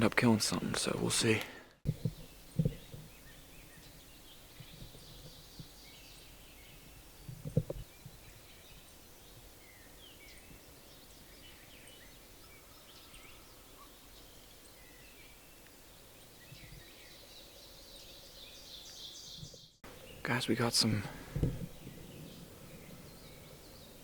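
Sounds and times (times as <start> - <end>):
faint outdoor background noise: 0.0 - 24.0
small birds chirping: 0.0 - 24.0
low knock or rustle: 21.2 - 22.1.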